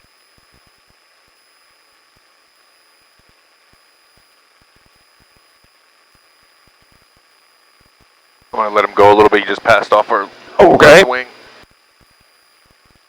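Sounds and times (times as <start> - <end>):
intercom radio hiss: 8.6 - 11.6
thin high whine: 8.6 - 11.6.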